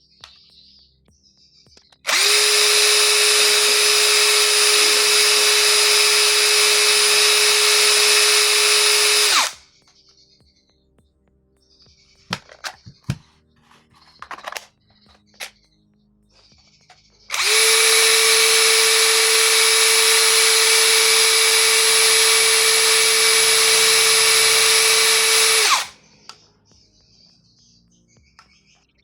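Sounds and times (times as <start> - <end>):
impact driver whining: 2.1 - 9.6, 12.3 - 13.3, 17.3 - 26.0
handling clicks and knocks: 12.3 - 15.6.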